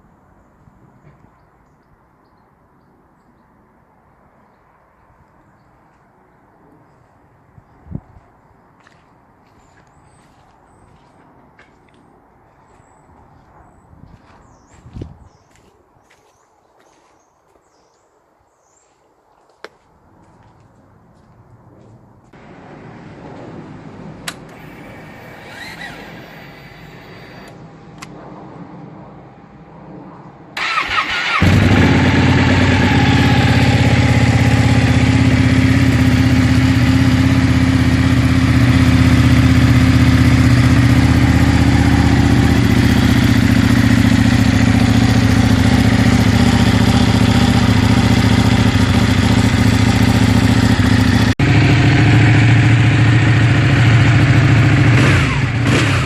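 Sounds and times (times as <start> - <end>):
motorcycle engine starting and idling: 24.2 - 28.1, 30.6 - 56.0.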